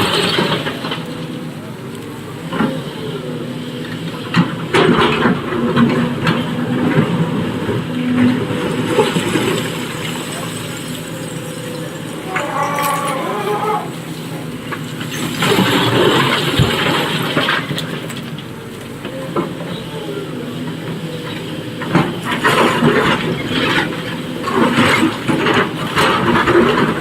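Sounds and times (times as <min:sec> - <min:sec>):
excavator diesel engine running: 0:00.0 - 0:27.0
rock and earth clattering: 0:14.6 - 0:18.5.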